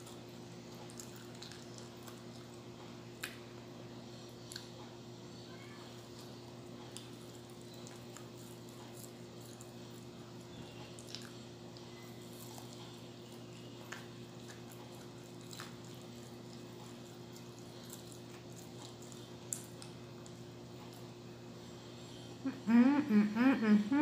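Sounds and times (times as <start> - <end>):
person chewing: 0.0 - 2.6, 6.1 - 21.2
low electrical hum: 0.0 - 24.0.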